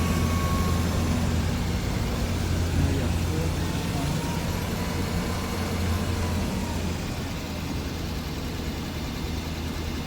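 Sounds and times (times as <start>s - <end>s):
bus engine and road noise: 0.0s - 10.0s.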